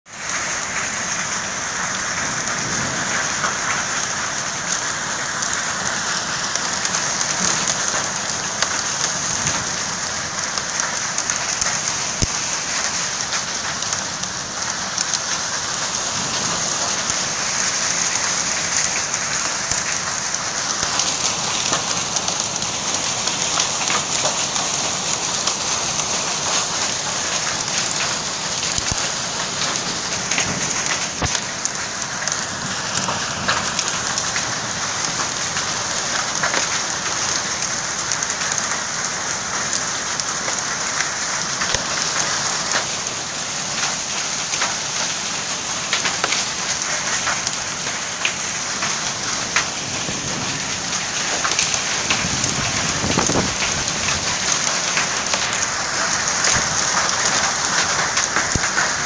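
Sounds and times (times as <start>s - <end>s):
heavy rain falling: 0.1s - 59.0s
raindrop ticks: 0.2s - 59.0s.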